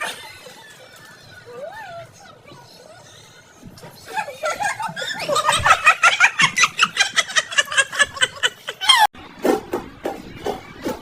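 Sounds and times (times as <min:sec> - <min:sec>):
person laughing: 0:04.1 - 0:09.1.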